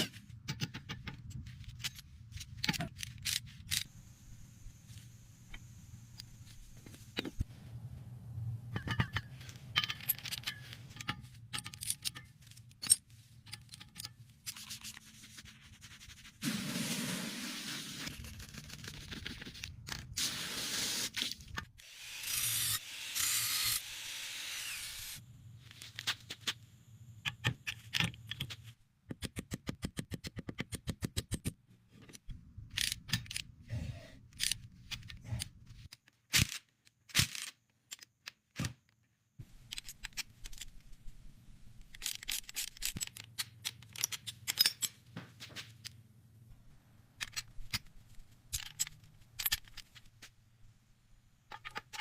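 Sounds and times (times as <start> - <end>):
scraping and rubbing: 9.0 - 20.1
hiss: 16.4 - 18.1, 20.2 - 21.2.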